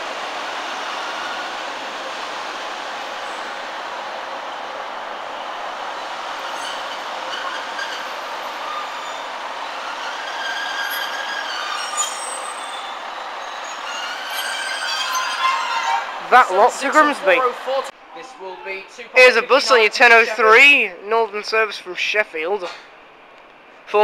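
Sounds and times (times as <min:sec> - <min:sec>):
train running noise: 0:00.0 - 0:24.0
high-pitched wheel squeals: 0:00.1 - 0:04.0, 0:05.4 - 0:17.0.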